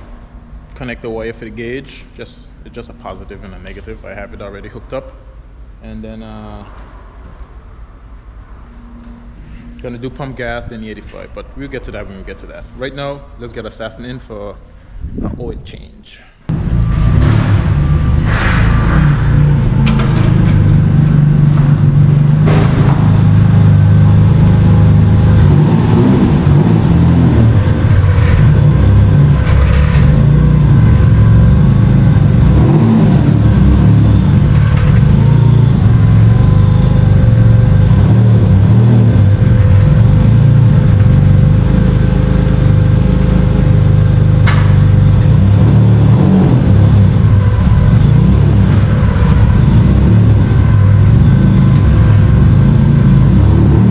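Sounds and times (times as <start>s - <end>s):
car engine running at low revs: 16.5s - 53.9s.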